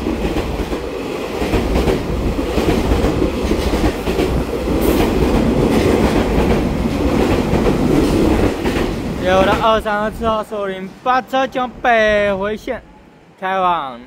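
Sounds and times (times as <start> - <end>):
wheels clicking over rail joints: 0.0 - 9.9
train wheels rumbling on rail: 0.0 - 13.2.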